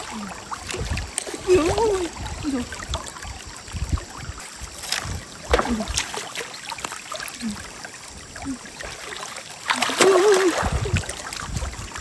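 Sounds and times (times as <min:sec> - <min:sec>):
stream water gurgling: 0:00.0 - 0:12.0
sharp splashes: 0:04.8 - 0:07.6, 0:08.4 - 0:11.5.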